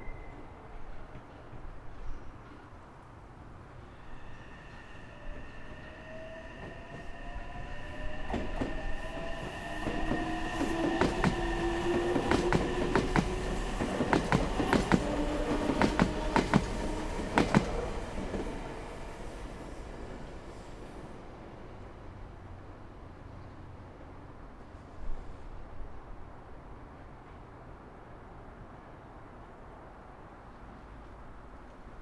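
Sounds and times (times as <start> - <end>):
electric train passing: 2.6 - 22.9
gliding whining tones: 3.8 - 21.1
wheels clacking over rail joints: 6.5 - 20.7.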